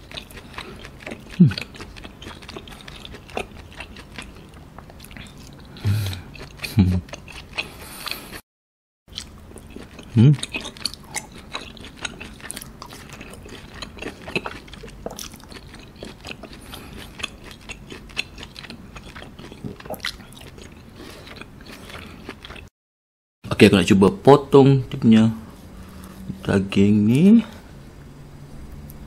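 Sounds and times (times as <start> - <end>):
wet chewing and lip smacks: 0.0 - 8.3, 9.1 - 22.7
person humming low: 1.4 - 1.6, 5.8 - 7.0.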